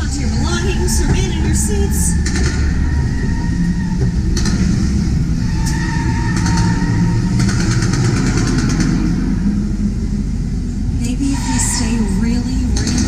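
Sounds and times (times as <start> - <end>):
rapid rattling clatter: 0.0 - 9.4
car engines revving: 0.0 - 13.0.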